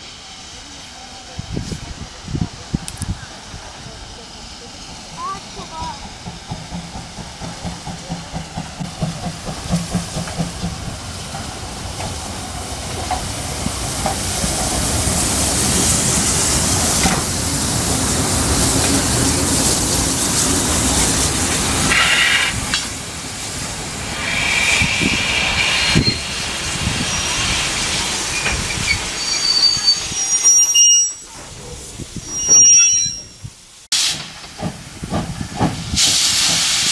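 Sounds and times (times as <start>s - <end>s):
steam locomotive exhaust chuffs: 0.0s - 30.2s, 34.0s - 36.9s
loud hiss of steam: 0.0s - 36.9s
high whistle tone: 27.0s - 31.4s.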